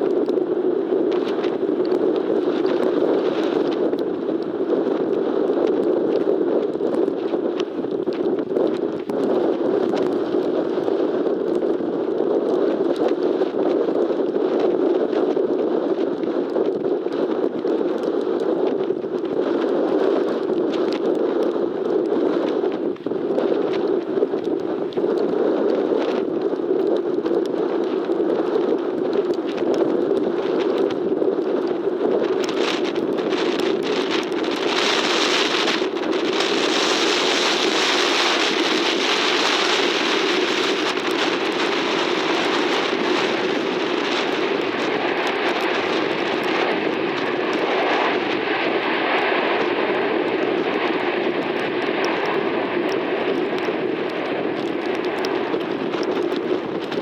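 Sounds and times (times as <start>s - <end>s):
wind: 0.0s - 57.0s
faint steady whine: 21.5s - 57.0s
rain: 32.4s - 49.0s
jet engines roaring: 32.4s - 57.0s.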